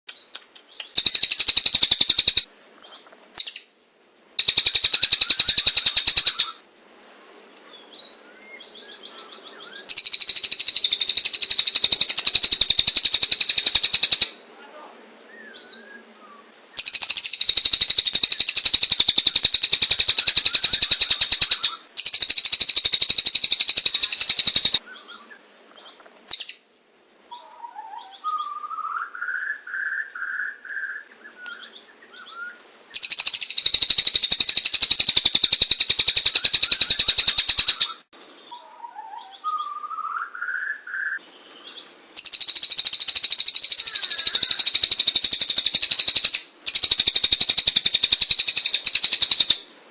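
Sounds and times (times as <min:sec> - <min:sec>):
rapid high bird trills: 0:00.8 - 0:02.5, 0:04.4 - 0:06.6, 0:08.9 - 0:14.4, 0:16.8 - 0:25.3, 0:33.0 - 0:39.8, 0:42.2 - 0:49.7
soft warbled bird phrases: 0:04.4 - 0:06.6, 0:08.3 - 0:25.5, 0:27.3 - 0:30.9, 0:31.5 - 0:49.6.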